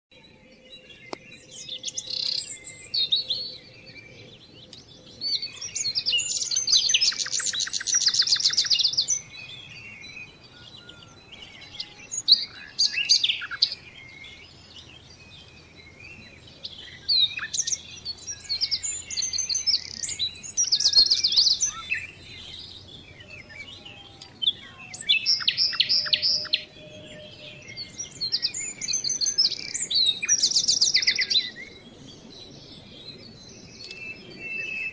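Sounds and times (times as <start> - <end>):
songbirds singing: 0.1 - 34.9.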